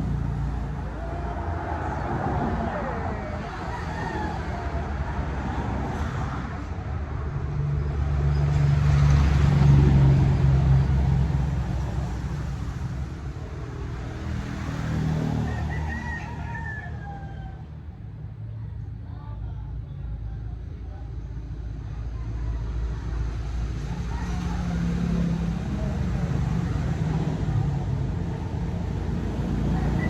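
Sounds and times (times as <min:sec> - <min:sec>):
vehicle engine rumble: 0:00.0 - 0:30.0
rooster crowing: 0:00.6 - 0:05.8, 0:14.9 - 0:17.8, 0:23.8 - 0:26.0, 0:29.3 - 0:30.0.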